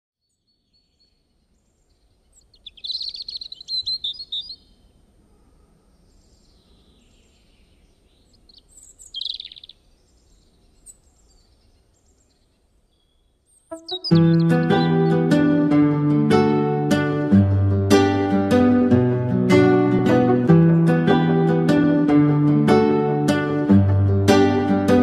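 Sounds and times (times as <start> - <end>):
birds chirping: 0.2 - 18.8.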